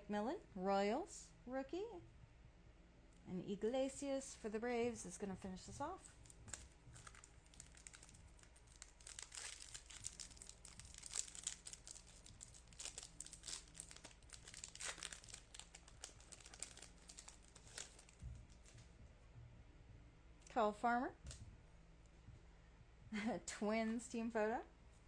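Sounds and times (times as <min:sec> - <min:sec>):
foil wrapper crinkling and tearing: 0:06.0 - 0:18.8.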